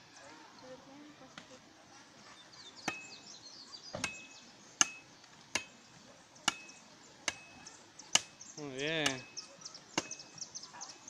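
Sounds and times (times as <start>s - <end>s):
machete chopping firewood: 2.8s - 3.1s, 4.0s - 5.8s, 6.4s - 9.3s, 10.0s - 10.3s.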